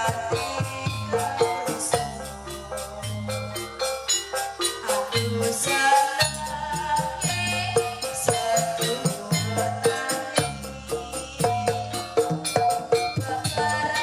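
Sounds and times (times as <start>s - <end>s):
low bass line: 0.0s - 9.8s
fast percussion beat: 0.0s - 14.0s
tuned melodic notes: 0.0s - 14.0s.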